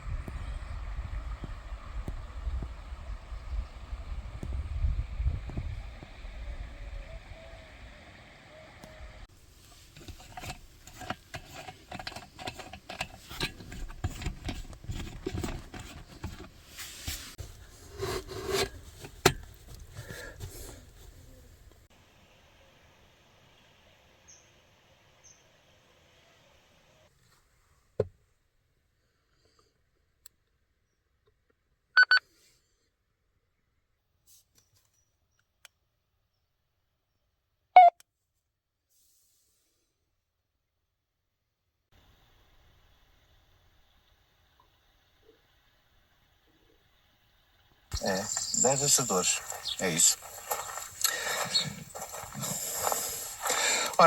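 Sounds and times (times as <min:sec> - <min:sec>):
scraping and rubbing: 0:09.5 - 0:21.3, 0:47.9 - 0:54.0
low electronic chirp: 0:48.0 - 0:50.8.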